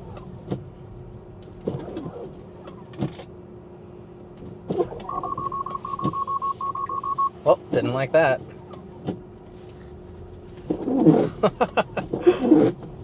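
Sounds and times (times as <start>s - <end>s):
low car cabin hum: 0.0s - 13.0s
rapid warning chime beeping: 5.0s - 7.4s.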